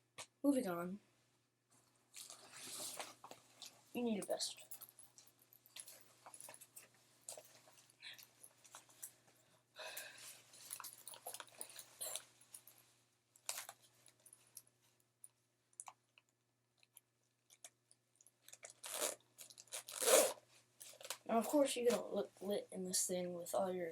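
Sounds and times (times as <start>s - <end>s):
fabric rustling: 1.7s - 14.6s.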